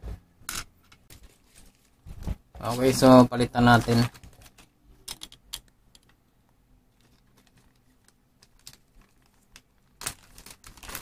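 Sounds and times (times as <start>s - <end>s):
plastic bag clicking and rustling: 3.7s - 6.1s, 7.0s - 11.0s.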